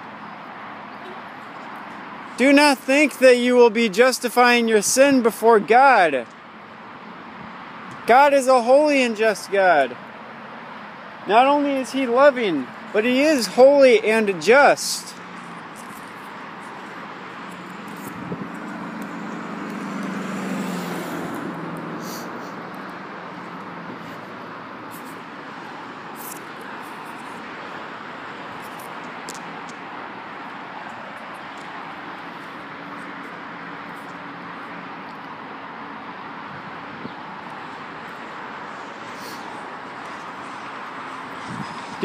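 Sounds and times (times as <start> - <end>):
road traffic hiss: 0.0 - 42.0
vehicle passing: 7.6 - 36.7.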